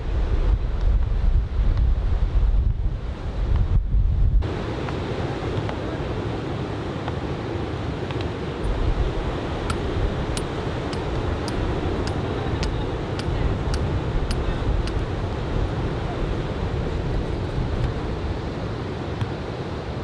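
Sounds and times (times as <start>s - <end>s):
wind buffeting microphone: 8.3s - 18.9s
light high ticks: 9.7s - 15.1s.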